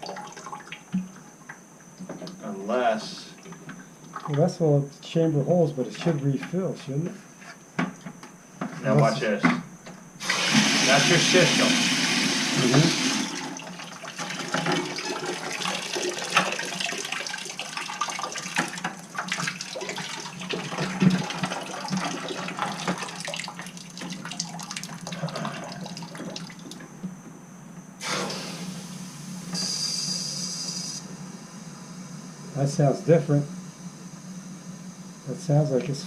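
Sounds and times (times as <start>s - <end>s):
water rushing and sputtering in pipes: 0.0s - 2.4s, 3.0s - 4.6s, 10.2s - 27.0s
high hiss: 10.2s - 13.6s, 28.0s - 36.0s.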